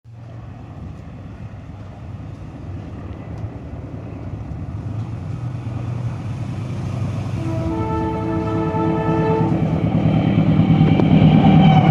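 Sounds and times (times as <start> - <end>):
diesel locomotive engine rumble: 0.0 - 11.9.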